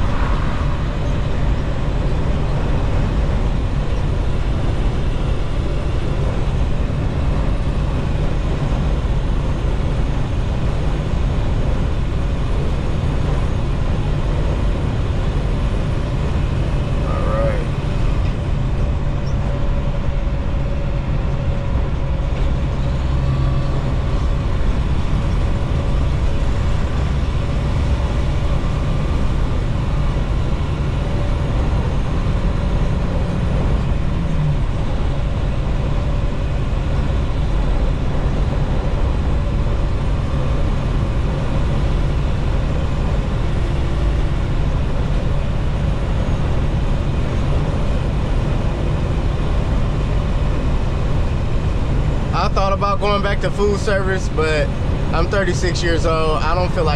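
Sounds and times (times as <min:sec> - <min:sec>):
faint steady whine: 0:00.0 - 0:56.9
truck engine and tyre drone: 0:00.0 - 0:56.9.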